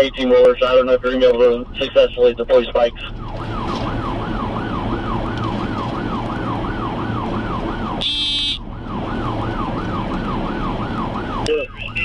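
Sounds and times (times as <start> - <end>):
low vehicle hum: 0.0 - 12.0
police siren yelping: 2.5 - 12.0
buzzing tone: 8.0 - 8.6.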